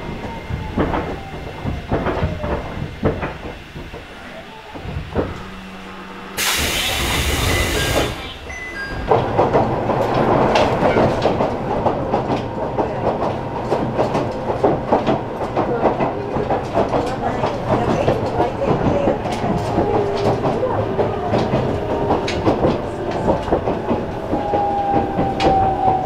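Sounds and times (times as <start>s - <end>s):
train interior hum: 0.0s - 26.0s
loud air hiss: 6.4s - 8.4s
wheels clattering over rail joints: 6.4s - 26.0s.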